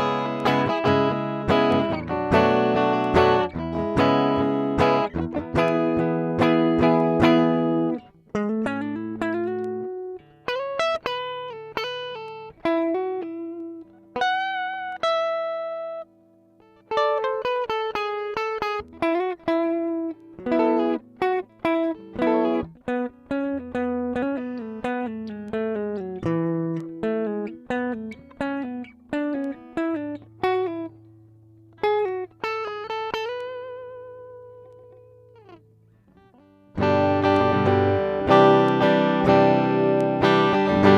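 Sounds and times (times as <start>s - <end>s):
clean electric guitar playing: 0.0s - 40.9s.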